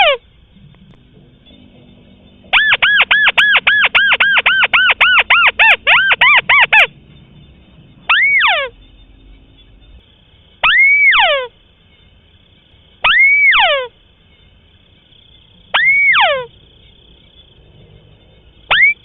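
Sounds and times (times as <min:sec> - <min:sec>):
bird whistling call: 0:01.5 - 0:06.9, 0:08.1 - 0:08.8, 0:10.6 - 0:11.5, 0:13.0 - 0:13.9, 0:15.7 - 0:16.5, 0:18.7 - 0:19.0.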